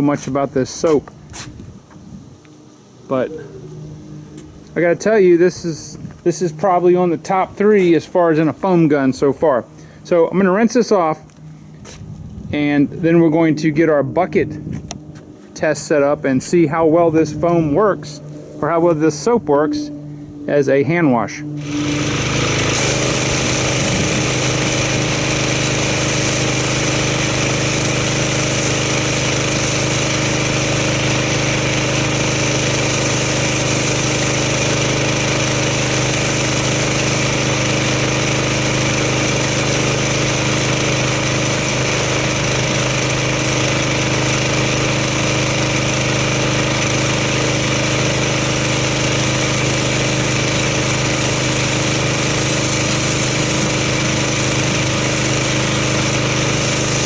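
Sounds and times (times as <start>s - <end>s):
pressure washer engine running: 0.0s - 57.0s
water spray rinsing car: 21.6s - 57.0s.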